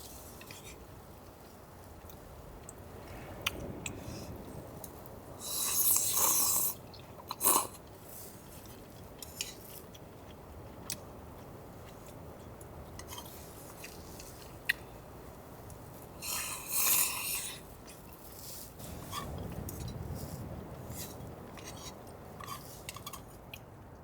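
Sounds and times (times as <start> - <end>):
scraping rustle: 17.4 - 23.4.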